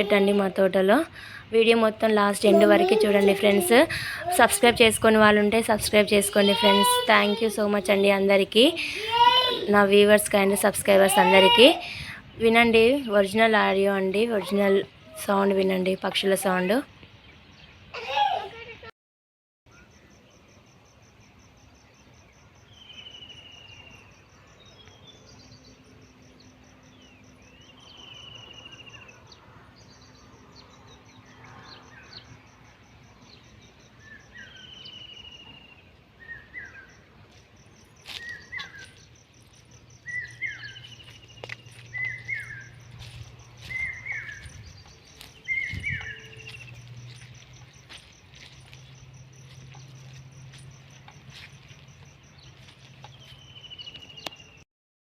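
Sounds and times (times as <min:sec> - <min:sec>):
birds calling: 0:00.0 - 0:18.2, 0:29.8 - 0:54.6
crickets trilling: 0:30.3 - 0:54.6.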